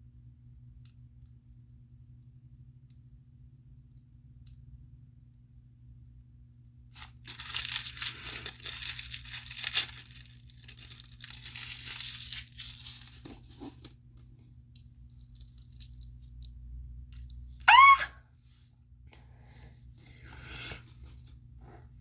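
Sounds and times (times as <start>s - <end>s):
plastic packaging tearing: 7.0s - 13.6s.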